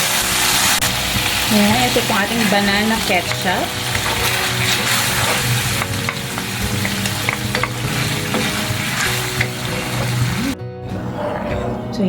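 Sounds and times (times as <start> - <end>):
sauce sizzling in a pan: 0.0 - 10.6
utensil clicking on pan: 2.4 - 10.2.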